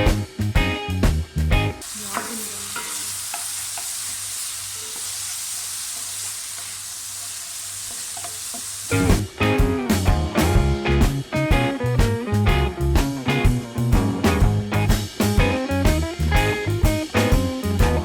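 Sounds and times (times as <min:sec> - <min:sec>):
guitar and drum music: 0:00.0 - 0:04.0, 0:08.4 - 0:18.0
food sizzling in hot oil: 0:01.8 - 0:09.5.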